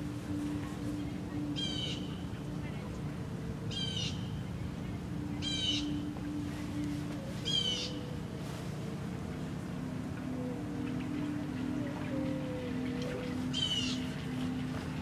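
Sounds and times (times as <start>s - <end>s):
low background rumble: 0.0s - 15.0s
bird harsh calls: 13.5s - 14.1s.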